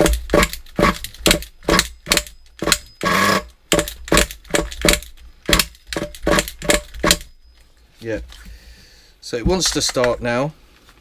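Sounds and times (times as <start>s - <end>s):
nitro engine cranking clacks: 0.0s - 7.3s.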